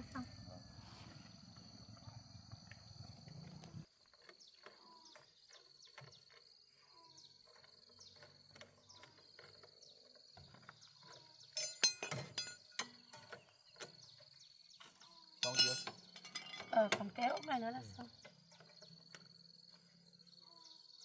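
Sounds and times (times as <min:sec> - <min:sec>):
insect drone: 0:00.0 - 0:11.8, 0:12.4 - 0:21.0
metal tools clinking: 0:11.5 - 0:13.4, 0:15.4 - 0:18.7.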